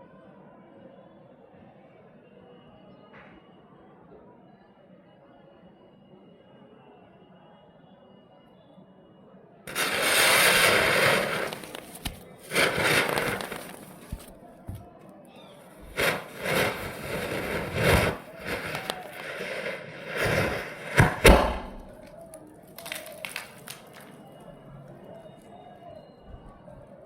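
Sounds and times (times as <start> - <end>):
firecrackers hissing: 9.7 - 14.9, 15.6 - 24.5
firecracker pops: 9.7 - 15.0, 15.7 - 24.4
loud firecracker crack: 9.7 - 15.0, 15.7 - 24.5.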